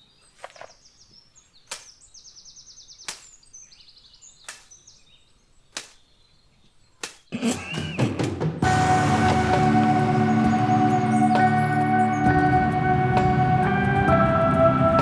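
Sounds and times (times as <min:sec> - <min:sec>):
small birds trilling: 0:00.0 - 0:12.3
outdoor ambience: 0:00.0 - 0:13.0
sharp clicks: 0:01.6 - 0:02.2, 0:03.0 - 0:06.2, 0:07.0 - 0:07.3.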